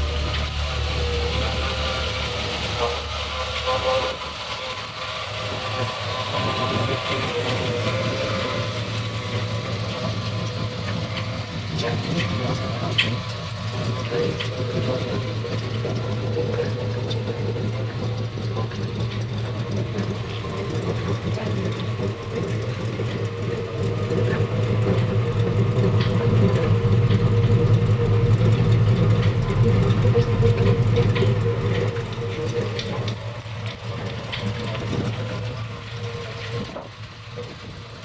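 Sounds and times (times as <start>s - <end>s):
car engine humming: 0.0s - 38.0s.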